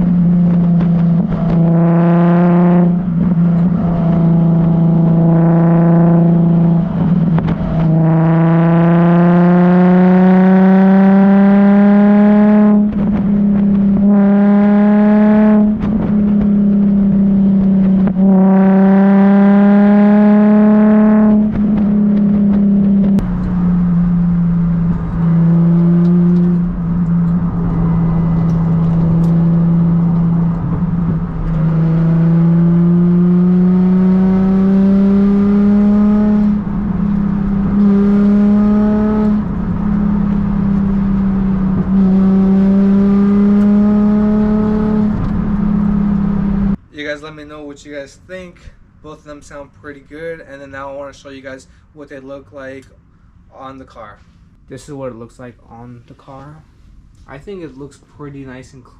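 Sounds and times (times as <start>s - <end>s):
car engine accelerating through gears: 0.0s - 46.8s.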